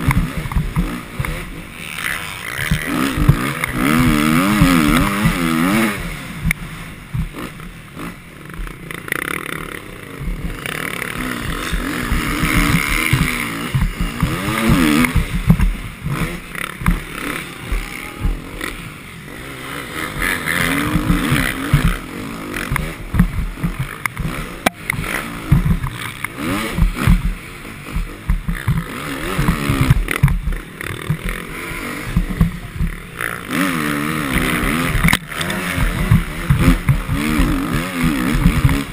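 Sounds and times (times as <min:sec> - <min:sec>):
motocross bike engine revving: 0:00.0 - 0:38.9
heavy low rumble with knocks: 0:11.5 - 0:17.1, 0:22.7 - 0:26.0, 0:26.7 - 0:31.5, 0:32.1 - 0:33.1.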